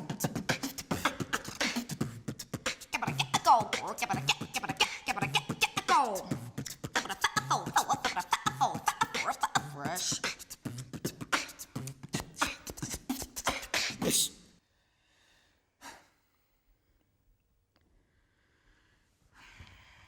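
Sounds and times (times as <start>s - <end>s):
person beatboxing: 0.0s - 14.4s.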